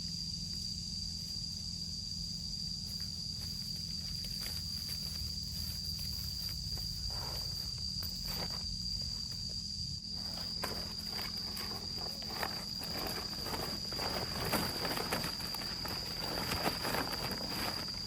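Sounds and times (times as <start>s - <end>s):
insect drone: 0.0s - 18.0s
rustling: 3.0s - 9.2s, 10.1s - 18.0s
footsteps: 10.2s - 18.0s.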